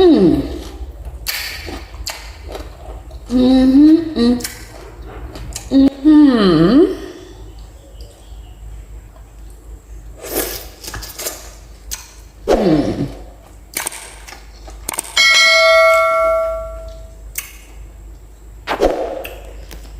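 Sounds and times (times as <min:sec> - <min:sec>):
bell-like chime: 0:15.2 - 0:17.1.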